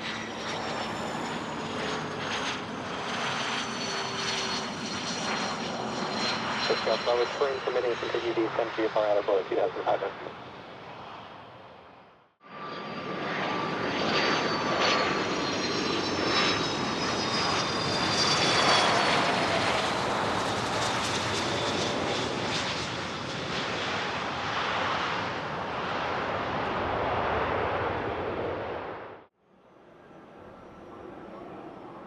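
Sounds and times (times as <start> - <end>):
high turbine whine: 0.0 - 11.3
jet aircraft engine roar: 0.0 - 32.0.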